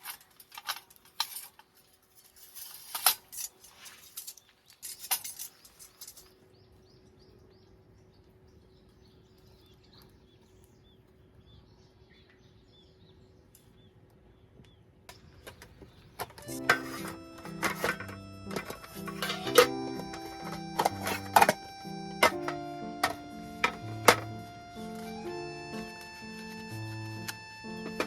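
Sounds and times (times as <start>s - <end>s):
clinks and clatter of objects: 0.0s - 6.4s, 15.4s - 24.3s
small birds chirping: 3.5s - 28.0s.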